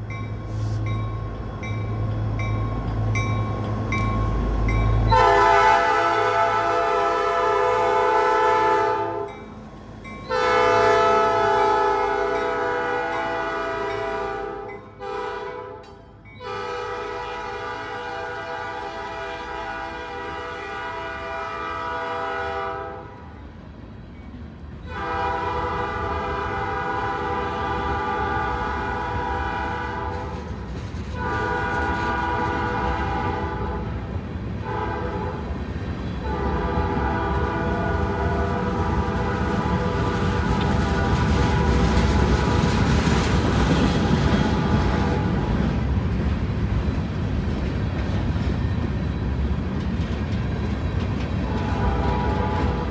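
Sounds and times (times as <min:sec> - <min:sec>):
train rumble: 0:00.0 - 0:52.9
locomotive air horn blasts: 0:05.1 - 0:09.4, 0:10.3 - 0:23.3, 0:24.9 - 0:30.5, 0:31.2 - 0:42.8, 0:43.9 - 0:45.7, 0:51.4 - 0:52.9.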